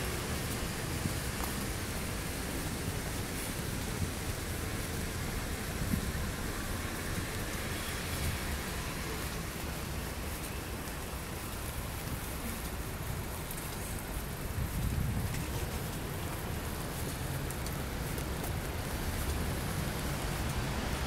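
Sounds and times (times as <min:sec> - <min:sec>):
rain hissing on wet street: 0:00.0 - 0:21.0.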